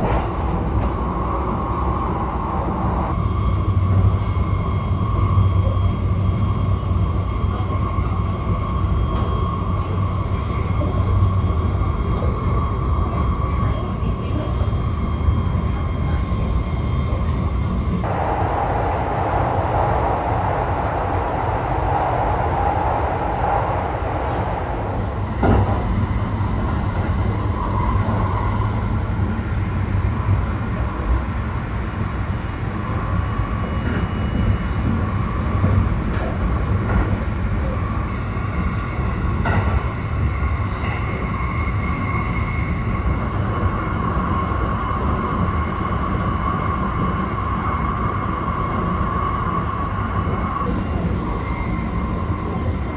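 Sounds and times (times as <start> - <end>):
train wheels rumbling on rail: 0.0 - 52.9.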